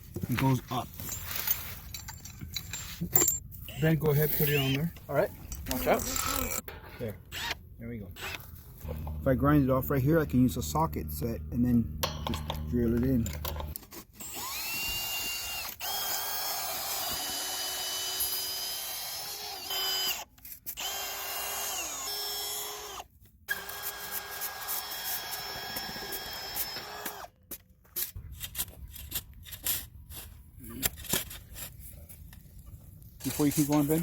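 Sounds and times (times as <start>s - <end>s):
power drill motor whining: 14.2s - 27.3s.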